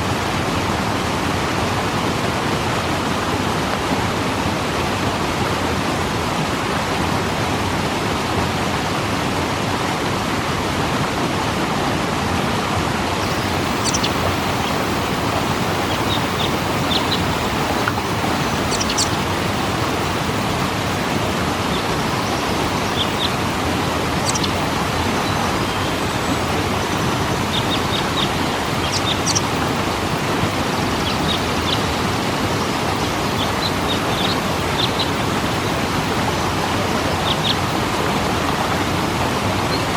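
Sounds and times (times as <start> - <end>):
waterfall rushing: 13.1 - 39.9
high bird chirps: 13.2 - 35.2.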